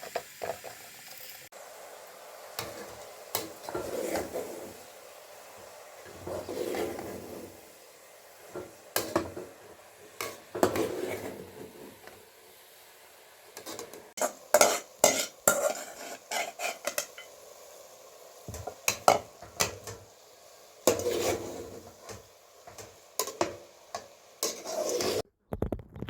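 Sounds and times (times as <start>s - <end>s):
dishes and pots clinking: 8.5s - 9.6s, 13.6s - 17.4s, 18.5s - 20.0s, 20.9s - 25.2s.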